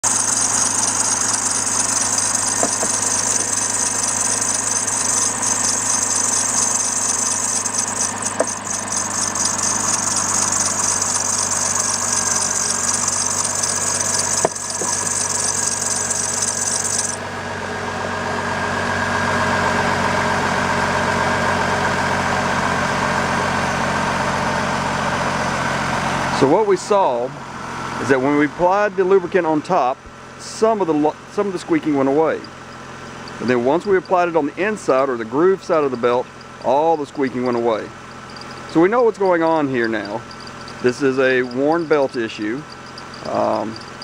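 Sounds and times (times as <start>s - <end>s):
belt squealing: 0.0s - 17.2s, 36.3s - 44.0s
car engine idling: 0.0s - 28.5s, 30.0s - 44.0s.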